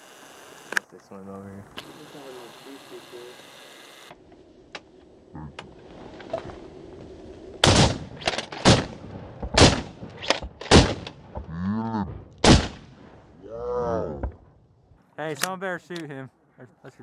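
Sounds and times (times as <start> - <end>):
shotgun blasts: 7.6 - 11.4, 12.4 - 13.0.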